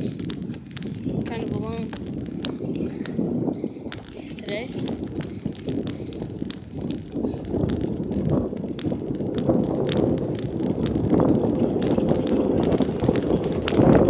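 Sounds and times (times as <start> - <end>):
bicycle rumble: 0.0 - 14.0
wind buffeting microphone: 0.0 - 14.0.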